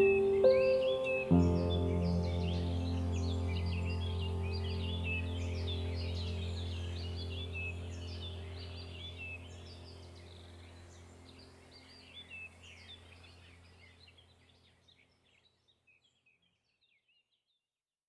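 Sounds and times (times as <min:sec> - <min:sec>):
small birds chirping: 0:00.0 - 0:17.6
steady low hum: 0:01.4 - 0:14.1.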